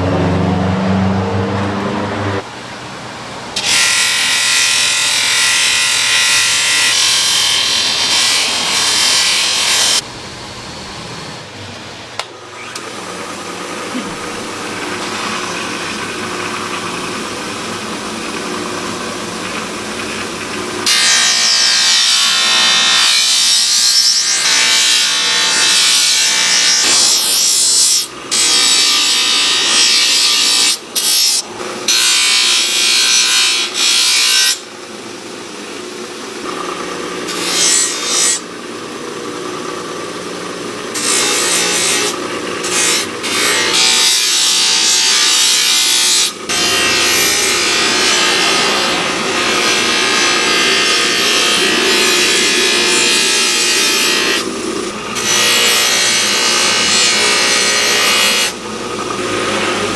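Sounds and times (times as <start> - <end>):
power tool working: 12.2 - 34.8, 36.4 - 59.9.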